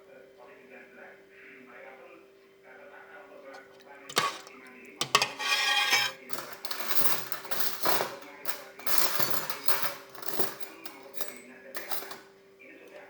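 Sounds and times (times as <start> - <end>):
metal spoon clinking on bowl: 4.1 - 12.2.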